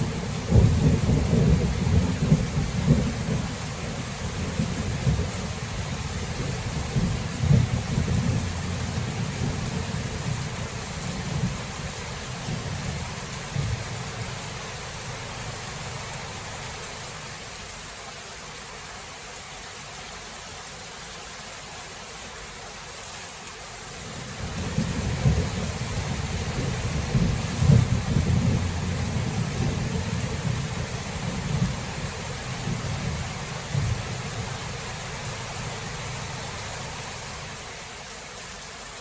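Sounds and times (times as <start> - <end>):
rolling thunder: 0.0 - 3.6, 6.4 - 14.0, 24.4 - 34.5
heavy rain hissing: 0.0 - 39.0.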